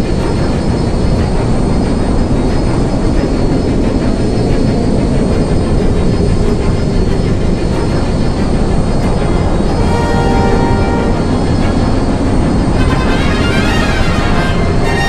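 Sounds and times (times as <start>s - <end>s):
loud low rumble: 0.0s - 15.0s
faint high whine: 8.2s - 15.0s.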